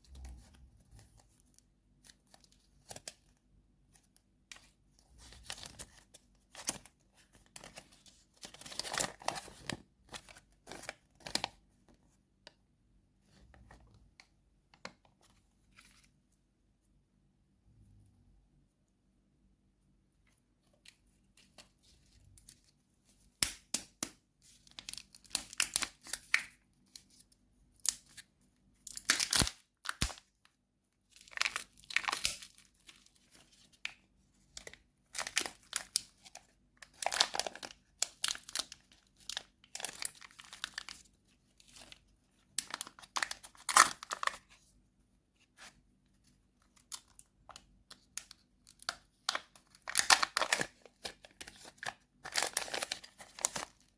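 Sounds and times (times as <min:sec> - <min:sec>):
candy wrapper tearing and crinkling: 0:28.9 - 0:30.3, 0:31.2 - 0:32.8, 0:36.8 - 0:41.0, 0:42.6 - 0:44.4, 0:48.2 - 0:53.8.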